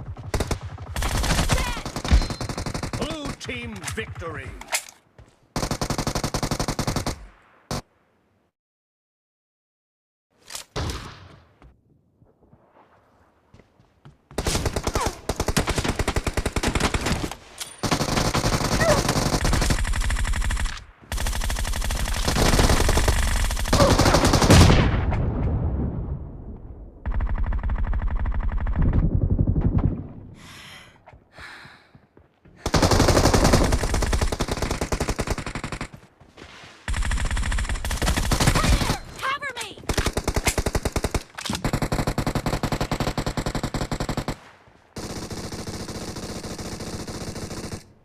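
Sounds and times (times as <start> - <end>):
video game automatic gunfire: 0.0 - 3.4, 5.6 - 7.8, 17.8 - 24.8, 32.6 - 36.0, 36.9 - 47.9.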